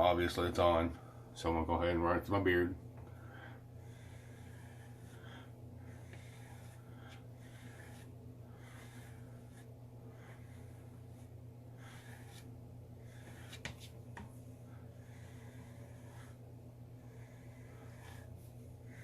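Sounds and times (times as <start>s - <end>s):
comb brushing through beard: 4.1s - 19.0s.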